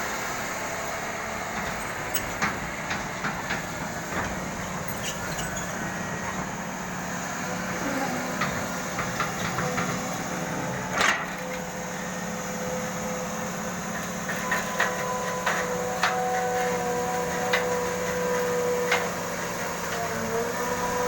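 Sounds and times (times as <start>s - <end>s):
excavator running: 0.0s - 21.0s
sharp knocks and clanks: 1.6s - 6.5s, 8.4s - 11.6s.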